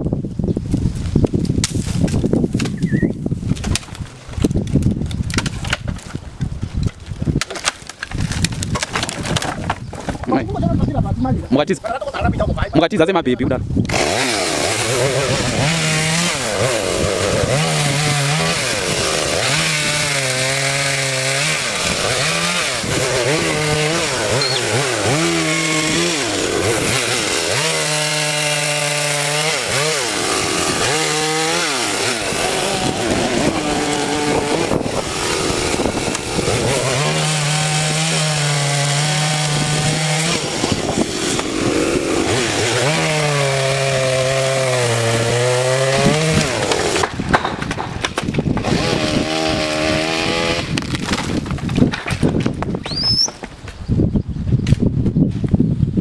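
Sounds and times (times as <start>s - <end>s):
chainsaw cutting wood: 1.4s - 10.2s, 13.8s - 53.7s.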